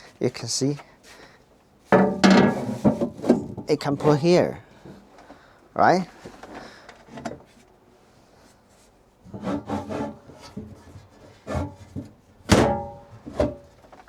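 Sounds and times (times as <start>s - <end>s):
panel rubbing and scraping: 2.0s - 4.4s, 9.3s - 12.1s.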